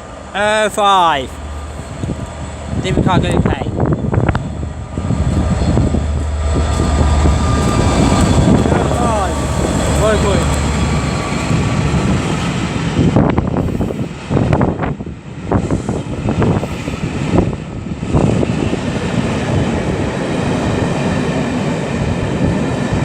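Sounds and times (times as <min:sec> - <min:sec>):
locomotive passing: 0:00.0 - 0:23.0
wheels clacking on rail: 0:04.1 - 0:13.4.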